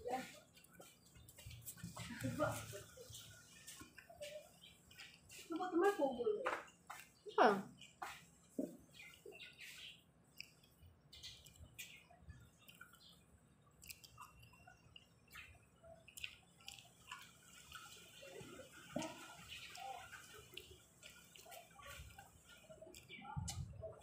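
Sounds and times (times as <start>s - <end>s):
wet chewing mouth clicks: 3.5s - 5.7s, 8.9s - 17.8s, 19.0s - 23.6s.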